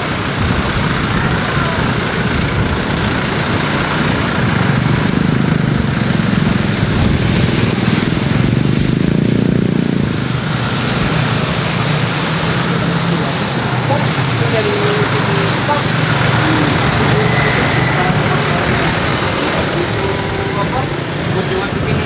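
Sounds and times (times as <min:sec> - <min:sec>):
jet aircraft engines: 0:00.0 - 0:22.0.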